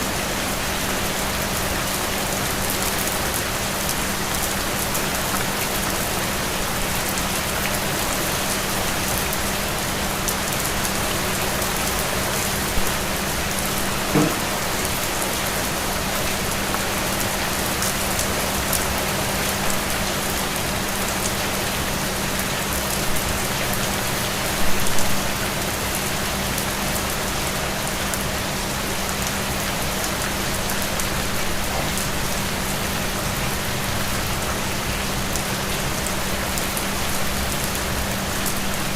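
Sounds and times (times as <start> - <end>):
steady rain falling: 0.0 - 38.9
louder drop taps: 14.1 - 14.6.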